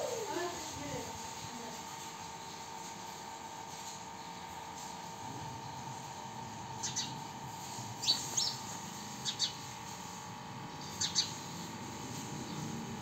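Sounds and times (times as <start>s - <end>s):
faint background hum: 0.0s - 13.0s
small bird chirping: 6.8s - 7.2s, 8.0s - 9.7s, 10.8s - 11.4s.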